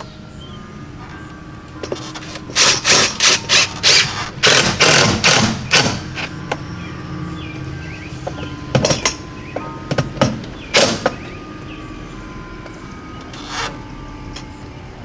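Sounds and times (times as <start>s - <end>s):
power driver driving screws: 2.6s - 6.3s.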